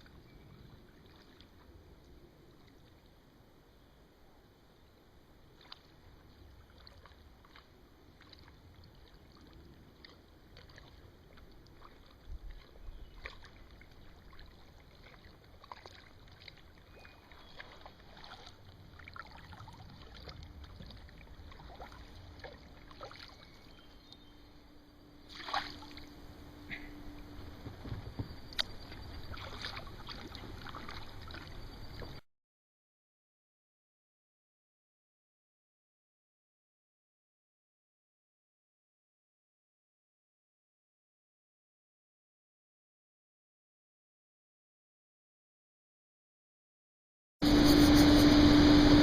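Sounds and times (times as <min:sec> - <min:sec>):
faint steady hum: 0:00.0 - 0:32.2
paddle dipping into water: 0:00.9 - 0:01.8, 0:05.5 - 0:24.2, 0:25.3 - 0:32.2
small splashes and drips: 0:00.9 - 0:01.8, 0:05.4 - 0:24.2, 0:25.3 - 0:26.1, 0:28.5 - 0:32.2
loud splash: 0:25.3 - 0:26.1.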